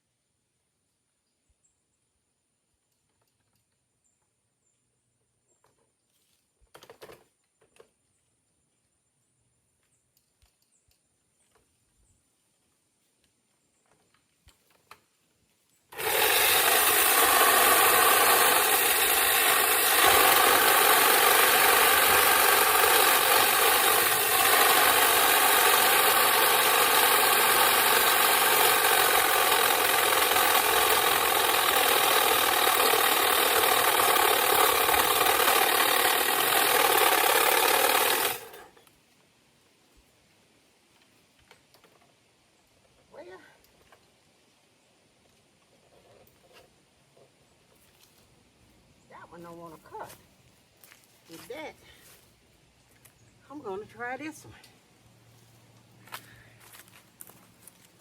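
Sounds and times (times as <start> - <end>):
motorized tree trimmer running: 15.9 - 38.9.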